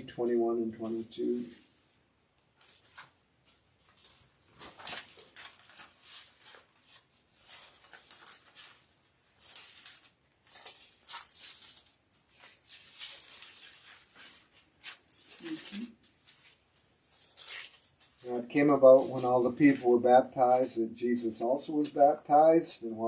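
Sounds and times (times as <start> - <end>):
paper pages rustling: 2.6 - 20.7.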